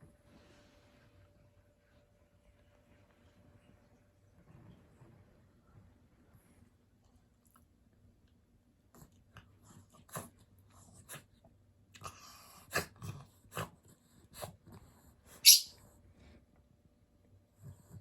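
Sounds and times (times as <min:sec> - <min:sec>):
dog snoring and snorting: 0:09.0 - 0:11.3, 0:12.0 - 0:15.1.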